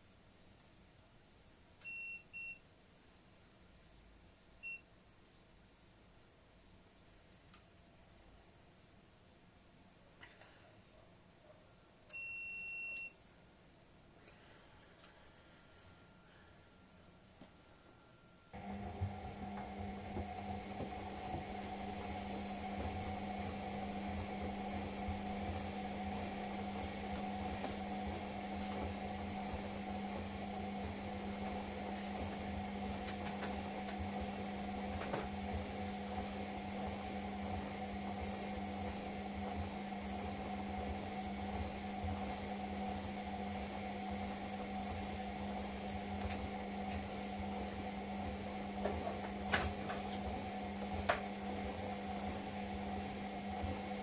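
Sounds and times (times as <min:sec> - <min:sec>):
washing machine running: 0:18.6 - 0:54.0.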